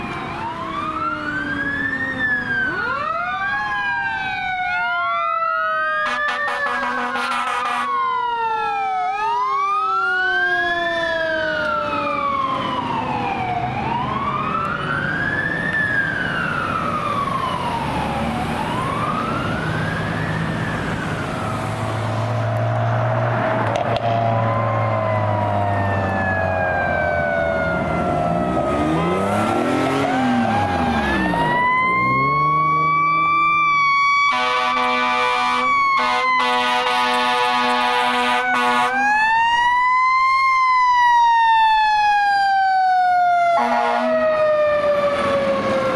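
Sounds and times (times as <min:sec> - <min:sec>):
fire engine siren wailing: 0:00.0 - 0:45.9
air horn blasts: 0:06.0 - 0:08.0, 0:34.3 - 0:39.0, 0:43.6 - 0:44.2
truck engine rumble: 0:10.9 - 0:36.0.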